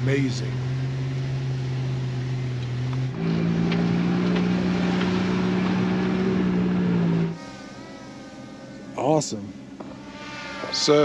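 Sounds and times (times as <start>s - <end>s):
jeep engine droning: 0.0s - 11.0s.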